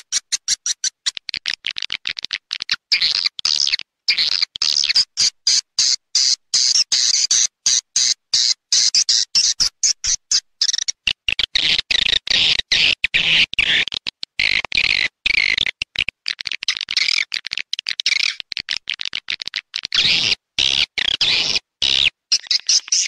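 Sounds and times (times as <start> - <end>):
high chattering bird chirps: 0.0 - 15.7, 16.6 - 18.7, 19.9 - 23.0.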